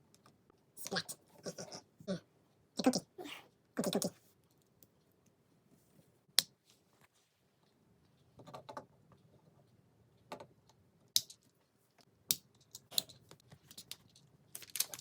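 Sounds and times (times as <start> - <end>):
plastic bricks clicking: 11.2 - 11.6, 12.3 - 15.0.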